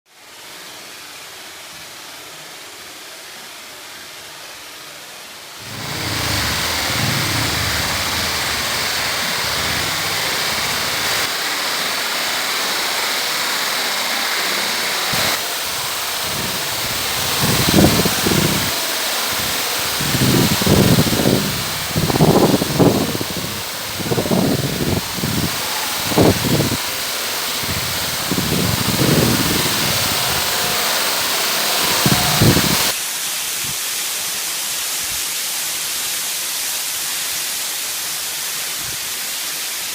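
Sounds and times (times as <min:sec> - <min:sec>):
low rumbles: 0:05.6 - 0:11.3, 0:20.0 - 0:30.6
waterfall rushing: 0:05.6 - 0:11.4, 0:14.8 - 0:32.9.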